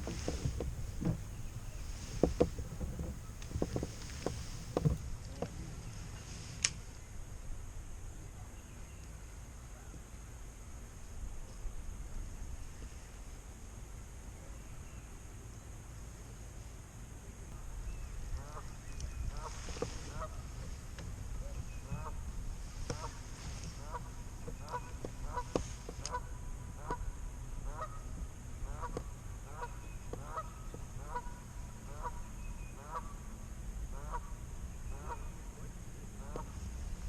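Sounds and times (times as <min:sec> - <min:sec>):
low wind rumble: 0:00.0 - 0:05.0.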